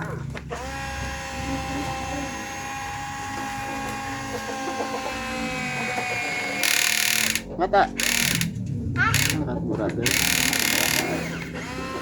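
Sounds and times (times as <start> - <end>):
small electric motor whining: 0.5 - 9.4, 10.0 - 12.0.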